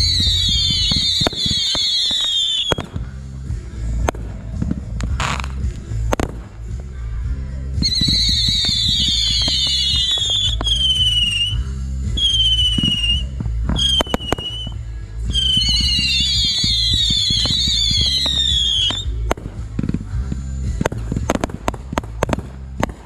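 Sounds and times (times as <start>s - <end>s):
firework pops and crackles: 0.0s - 3.2s, 3.8s - 7.0s, 7.8s - 23.0s
whistling fireworks: 0.0s - 3.2s, 7.8s - 23.0s.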